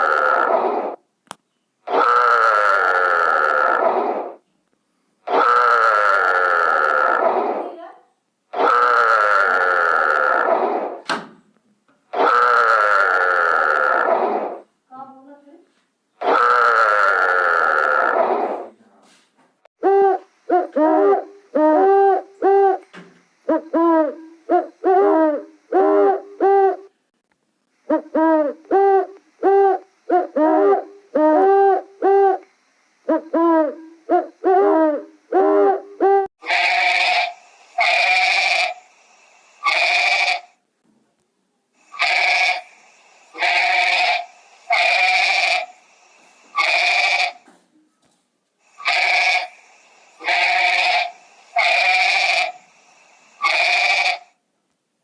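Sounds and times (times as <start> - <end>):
animal hooting calls: 0.0 - 1.0, 1.9 - 4.4, 5.3 - 7.6, 8.5 - 11.0, 12.1 - 14.7, 16.2 - 18.7, 19.8 - 22.9, 23.5 - 26.9, 33.1 - 38.9, 39.6 - 40.5, 41.9 - 45.8, 46.5 - 47.4, 48.7 - 52.7, 53.3 - 54.3
harsh bleat-like animal calls: 1.9 - 4.0, 5.3 - 7.5, 8.6 - 10.6, 12.1 - 14.3, 16.2 - 18.4, 36.4 - 38.8, 39.6 - 40.5, 41.9 - 42.7, 43.4 - 45.7, 46.6 - 47.5, 48.8 - 49.5, 50.2 - 52.6, 53.4 - 54.3.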